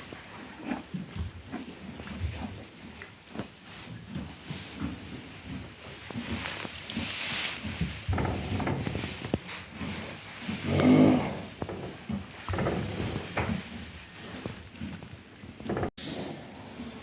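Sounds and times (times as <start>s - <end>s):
horse sounds: 0.0s - 17.0s.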